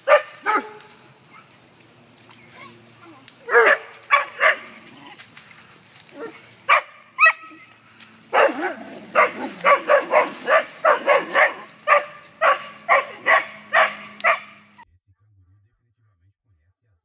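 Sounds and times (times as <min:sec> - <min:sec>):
dog barking: 0:00.0 - 0:01.5, 0:03.4 - 0:04.8, 0:06.2 - 0:07.7, 0:08.3 - 0:14.8.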